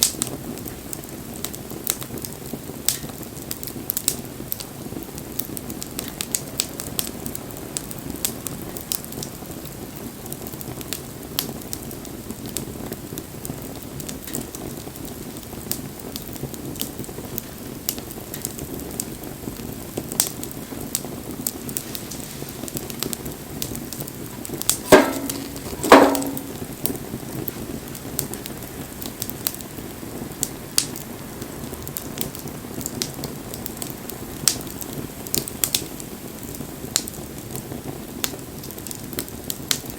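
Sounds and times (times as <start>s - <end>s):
campfire hissing and crackling: 0.0s - 39.9s
loud knocks: 24.9s - 26.6s.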